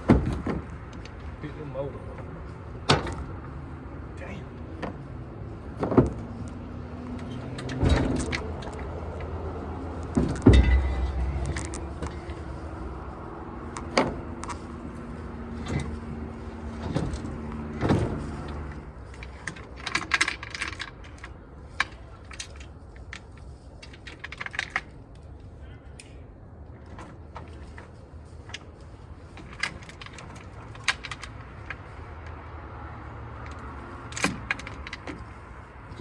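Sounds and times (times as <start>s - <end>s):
metal clanking of engine hoist chain: 7.2s - 9.3s, 10.0s - 12.8s, 15.6s - 22.7s, 29.4s - 31.9s, 33.4s - 36.0s
low steady hum: 10.1s - 17.3s.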